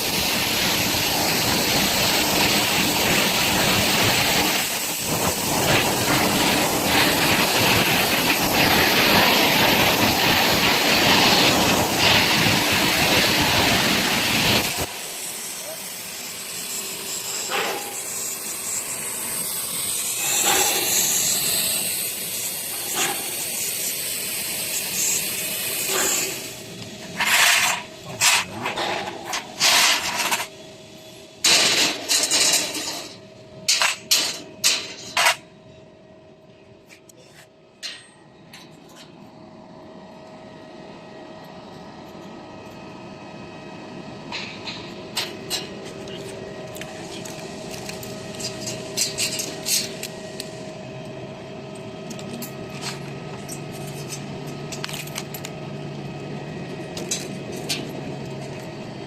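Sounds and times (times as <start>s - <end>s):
plasma cutting torch hissing: 0.0s - 35.4s, 46.8s - 50.7s.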